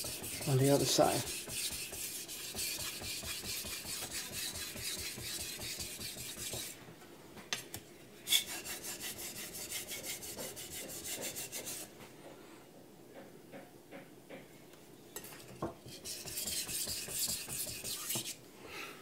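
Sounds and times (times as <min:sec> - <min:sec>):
knife scraping on whetstone: 0:00.0 - 0:06.8, 0:08.3 - 0:11.9, 0:15.8 - 0:18.4.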